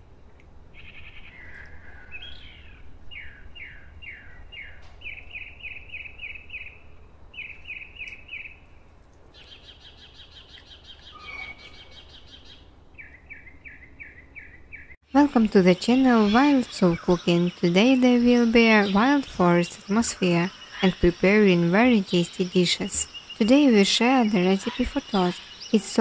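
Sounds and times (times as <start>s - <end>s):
songbird singing: 0.3s - 26.0s
high buzzy bird trill: 10.5s - 26.0s.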